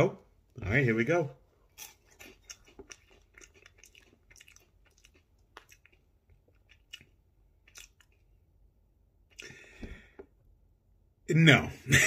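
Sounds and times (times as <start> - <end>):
person crunching a snack: 1.6 - 8.4.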